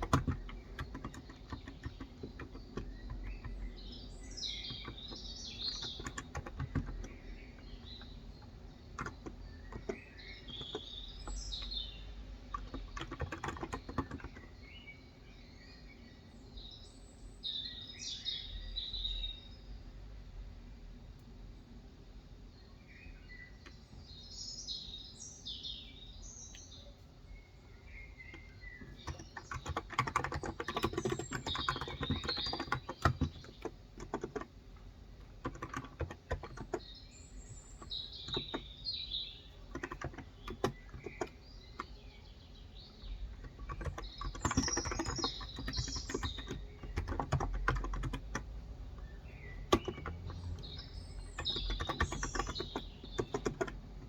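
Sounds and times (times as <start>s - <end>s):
keyboard typing: 0.0s - 14.6s, 28.2s - 42.0s, 43.0s - 54.0s
birds chirping: 0.0s - 19.9s, 21.5s - 54.0s.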